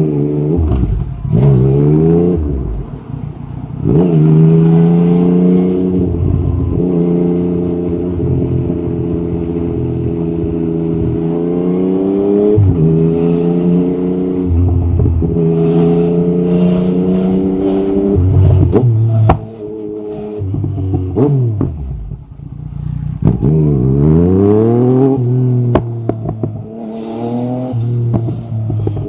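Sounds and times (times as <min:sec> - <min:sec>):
motorcycle engine accelerating: 0:00.0 - 0:29.0.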